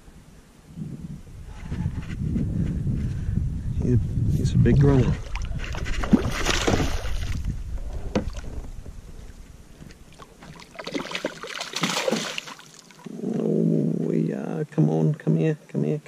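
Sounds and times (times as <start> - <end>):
wind rumbling on microphone: 0.0 - 11.0
water splashing around a kayak: 4.8 - 9.2, 9.8 - 13.1.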